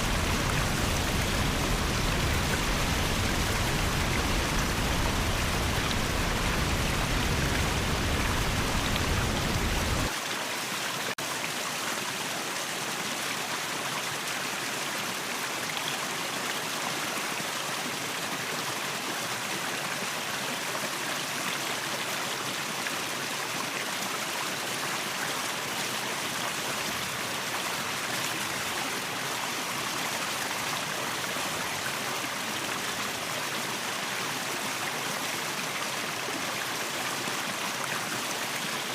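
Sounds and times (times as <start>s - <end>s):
waterfall rushing: 0.0s - 10.2s.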